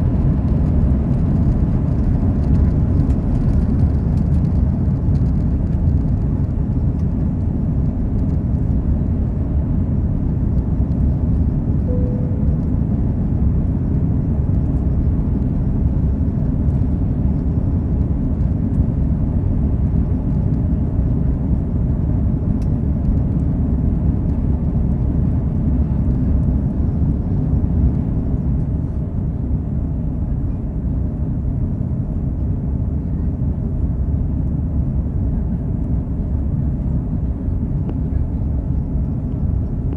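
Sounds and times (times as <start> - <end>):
airplane cabin engine rumble: 0.0 - 39.9
short tone: 11.9 - 13.2.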